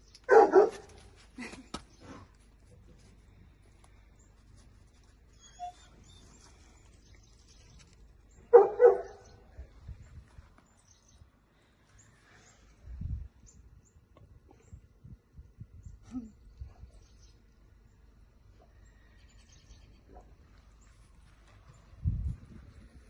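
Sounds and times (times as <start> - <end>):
dog barking: 0.3 - 0.9, 8.5 - 9.3.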